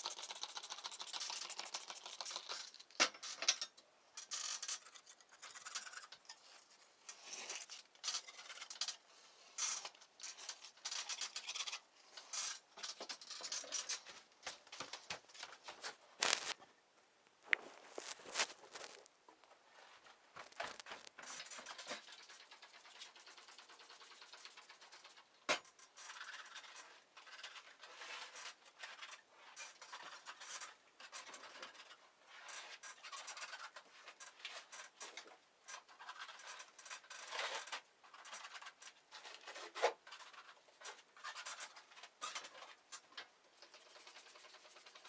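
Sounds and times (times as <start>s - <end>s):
scratching and scraping: 9.6s - 16.7s, 17.4s - 23.4s.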